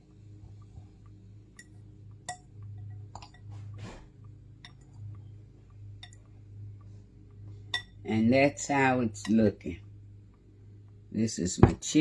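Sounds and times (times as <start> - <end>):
steady low hum: 0.0 - 12.0
utensil clinking against bowl: 7.7 - 8.0.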